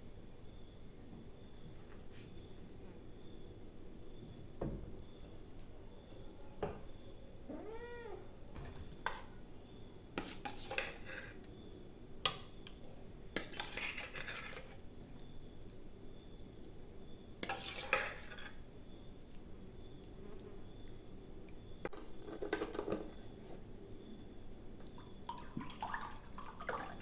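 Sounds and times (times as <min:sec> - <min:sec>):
cat meowing: 0:07.5 - 0:08.3.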